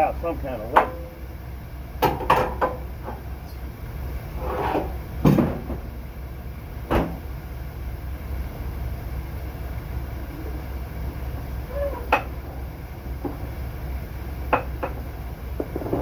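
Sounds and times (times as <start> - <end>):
truck engine idling: 0.0 - 16.0
sharp knocks and clanks: 0.6 - 1.2, 2.0 - 3.6, 4.5 - 6.0, 6.8 - 7.3, 11.1 - 13.8, 14.4 - 16.0.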